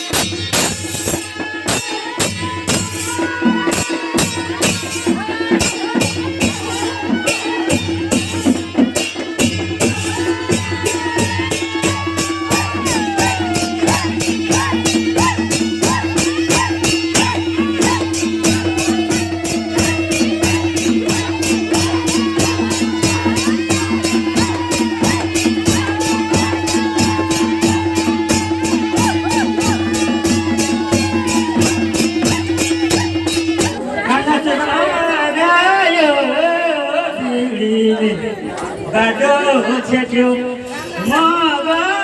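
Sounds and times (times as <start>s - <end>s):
fast cymbal strokes: 0.0s - 33.8s.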